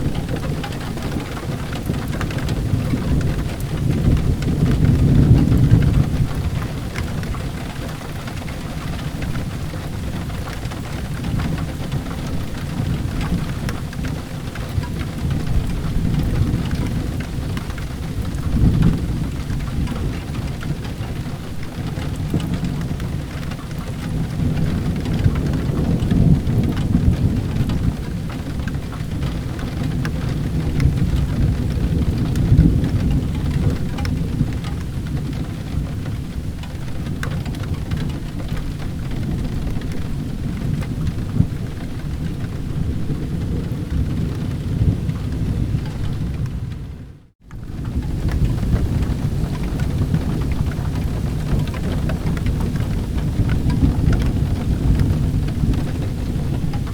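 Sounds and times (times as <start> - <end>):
rumble of thunder: 0.0 - 56.9
steady rain: 0.0 - 56.9.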